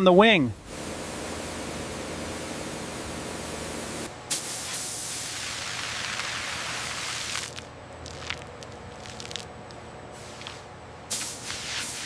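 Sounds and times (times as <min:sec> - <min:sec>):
pressurised spray hissing: 0:00.6 - 0:07.5, 0:11.1 - 0:12.0.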